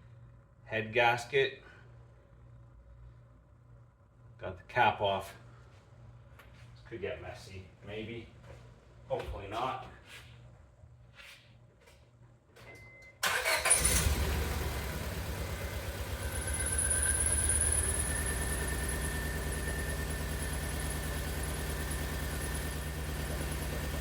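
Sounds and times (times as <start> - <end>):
car engine starting and idling: 13.2 - 24.0
high steady whine: 15.5 - 24.0.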